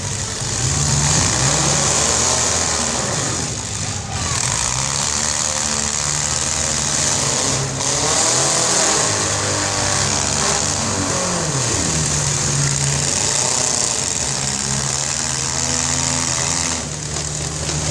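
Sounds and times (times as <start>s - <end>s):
car engines revving hard: 0.0s - 17.9s.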